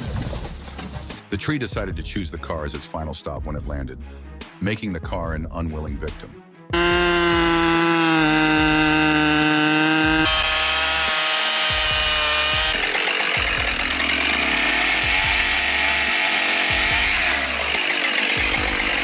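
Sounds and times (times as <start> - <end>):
chainsaw cutting wood: 6.8 - 19.0.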